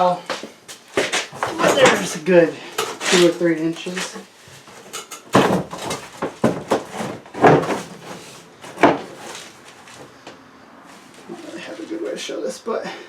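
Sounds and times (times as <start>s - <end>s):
sharp knocks and clunks: 4.7s - 9.4s.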